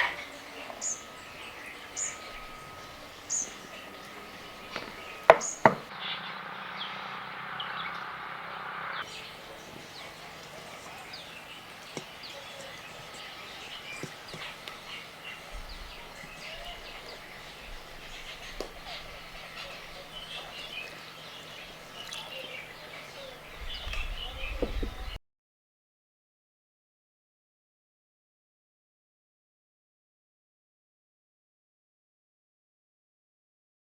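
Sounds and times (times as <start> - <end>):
even hiss: 0.0 - 5.9
small birds chirping: 0.0 - 5.9, 9.0 - 25.2
sharp knocks: 3.8 - 5.9.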